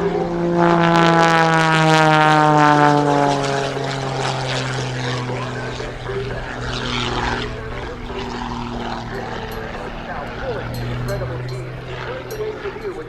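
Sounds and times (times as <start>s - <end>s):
propeller plane passing by: 0.0s - 13.0s.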